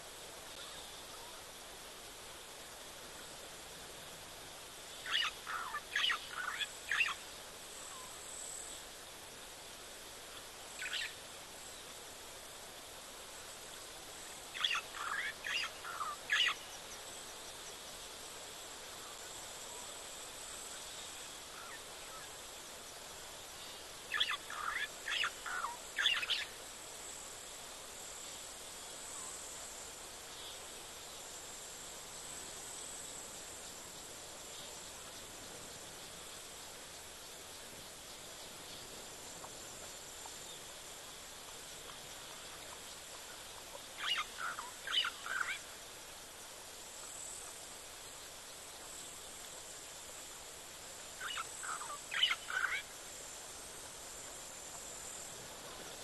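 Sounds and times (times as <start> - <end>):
outdoor hiss: 0.0 - 56.0
bird calling: 44.0 - 45.6, 51.2 - 52.9.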